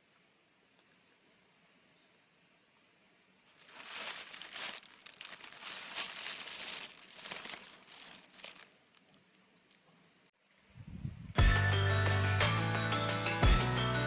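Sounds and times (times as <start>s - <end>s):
crinkling and rustling: 3.5s - 10.3s.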